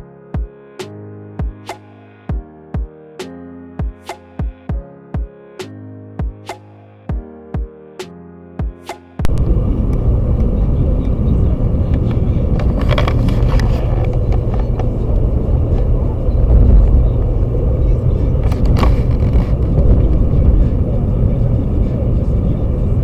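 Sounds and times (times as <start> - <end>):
truck engine and road rumble: 9.2 - 23.0.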